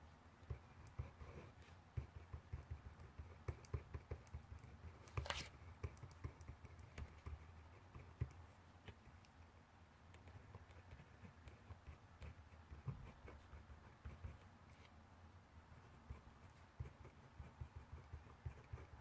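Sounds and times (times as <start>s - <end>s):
pencil writing on paper: 0.4s - 9.2s, 10.1s - 14.5s, 15.7s - 19.0s
paper rustle: 5.1s - 5.5s.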